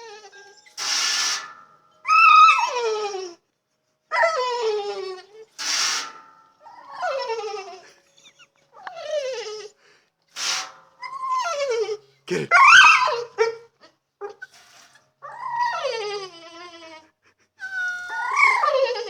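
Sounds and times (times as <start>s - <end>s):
dog whimpering: 6.7s - 9.8s, 15.2s - 19.0s.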